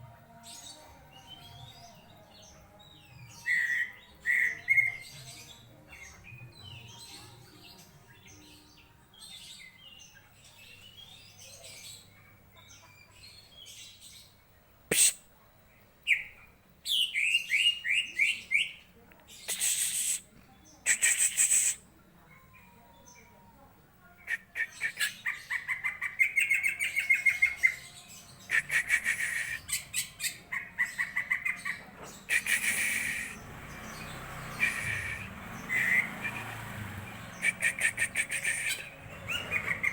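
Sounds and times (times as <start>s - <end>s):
bird singing faintly: 15.7s - 39.9s.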